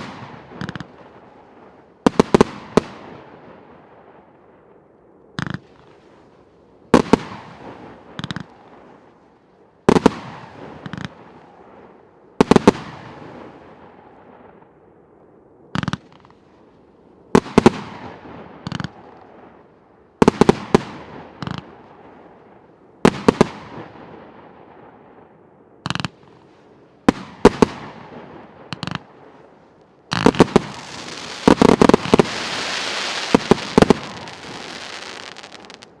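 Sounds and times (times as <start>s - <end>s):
firework burst bangs: 30.1s - 36.0s
firework crackling: 30.1s - 36.0s.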